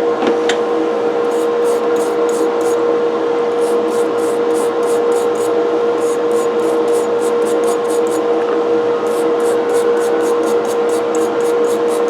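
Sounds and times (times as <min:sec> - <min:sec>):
steady hum: 0:00.7 - 0:12.0
brush scrubbing metal: 0:01.2 - 0:02.8, 0:03.5 - 0:08.2, 0:09.0 - 0:12.0.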